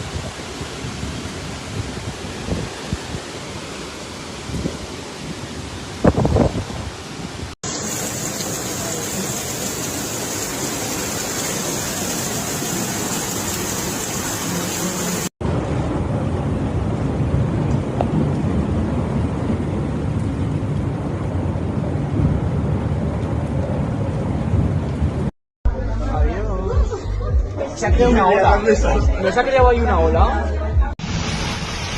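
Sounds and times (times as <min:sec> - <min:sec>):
rushing floodwater: 0:00.0 - 0:15.8
heavy rain: 0:00.0 - 0:25.3, 0:31.0 - 0:31.9.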